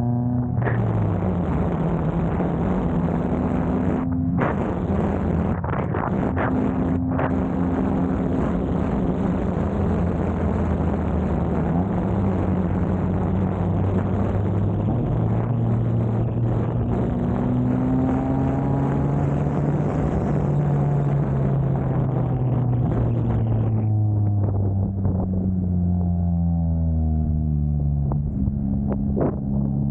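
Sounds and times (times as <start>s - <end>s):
car engine running: 0.0s - 29.9s
road noise: 0.0s - 29.9s.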